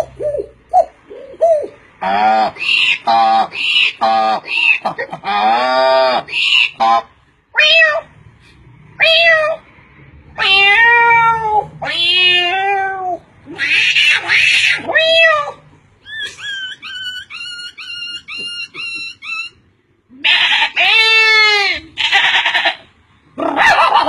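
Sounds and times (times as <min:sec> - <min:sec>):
cat meowing: 0:07.6 - 0:08.1, 0:09.0 - 0:09.6, 0:10.4 - 0:15.6, 0:20.2 - 0:22.8.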